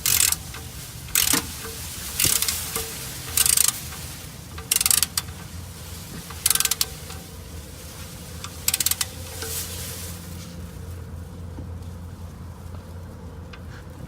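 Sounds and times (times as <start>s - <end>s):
ratchet wrench clicking: 0.0s - 7.3s, 8.4s - 9.9s.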